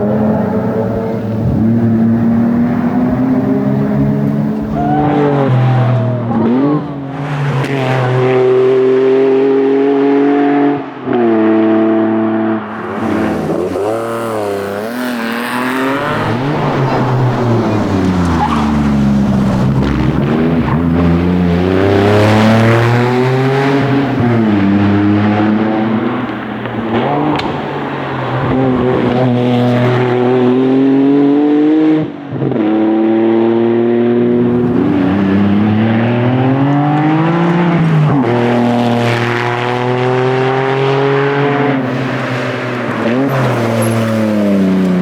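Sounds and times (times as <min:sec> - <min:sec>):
rally car engine accelerating: 0:00.0 - 0:45.0.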